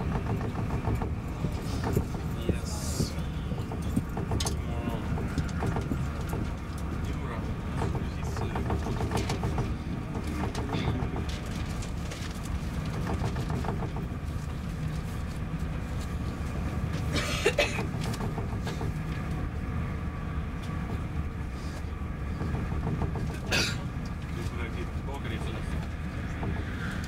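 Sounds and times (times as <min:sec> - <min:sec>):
train rumbling on track: 0:00.0 - 0:27.0.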